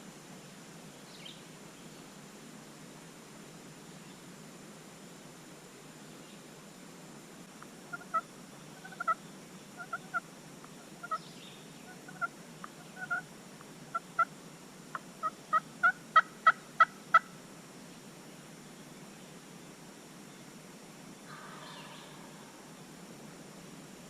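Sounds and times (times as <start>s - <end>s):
turkey yelping: 7.9s - 8.2s, 8.8s - 9.2s, 9.8s - 10.2s, 11.0s - 11.2s, 11.9s - 13.2s, 15.2s - 17.3s.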